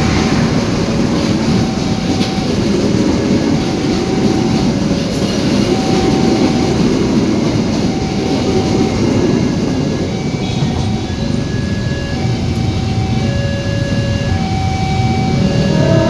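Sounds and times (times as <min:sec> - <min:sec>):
freight train wagons rumbling: 0:00.0 - 0:16.0.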